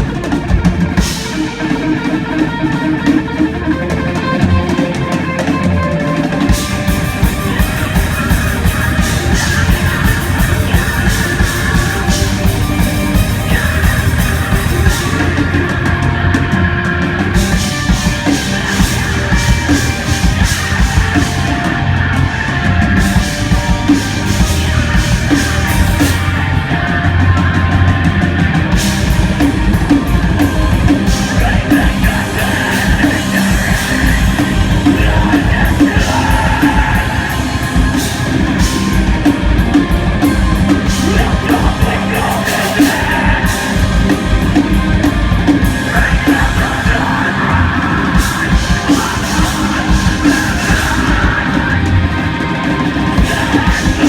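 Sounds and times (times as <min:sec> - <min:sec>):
bass guitar: 0:00.0 - 0:54.0
distorted guitars: 0:00.0 - 0:54.0
drum kit: 0:00.0 - 0:54.0.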